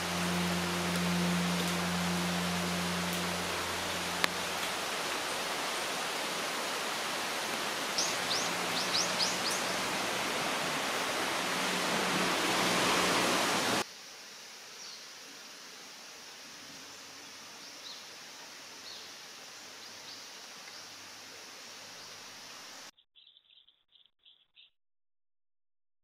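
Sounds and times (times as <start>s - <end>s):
steady outdoor hiss: 0.0s - 22.9s
small bird chirping: 8.0s - 9.9s, 22.9s - 24.8s.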